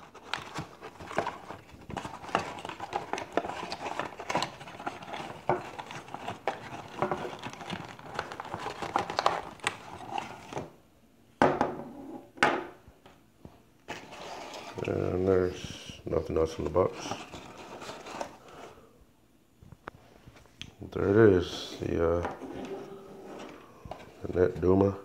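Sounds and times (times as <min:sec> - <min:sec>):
plastic and cardboard crinkling: 0:00.0 - 0:10.7, 0:16.4 - 0:18.7
packaging clicks and knocks: 0:00.1 - 0:10.6.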